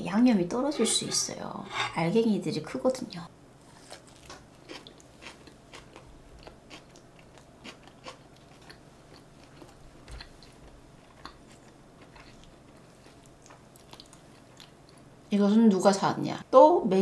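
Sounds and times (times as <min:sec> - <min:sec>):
close-up chewing: 0:03.8 - 0:15.1.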